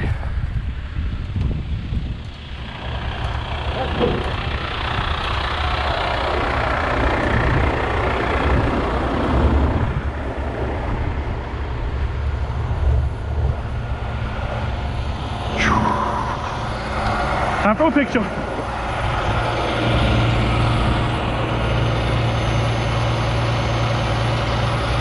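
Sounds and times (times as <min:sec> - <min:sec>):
truck diesel engine rumbling: 0:00.0 - 0:25.0
short downward-sliding tone: 0:15.4 - 0:19.0.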